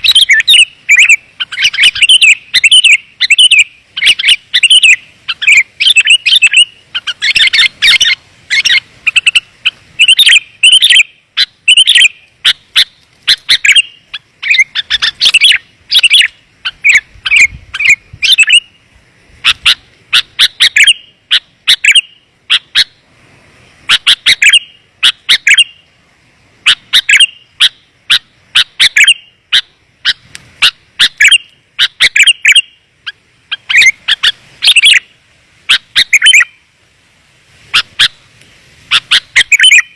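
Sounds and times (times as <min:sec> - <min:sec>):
bulbul chirping: 0:00.0 - 0:18.8.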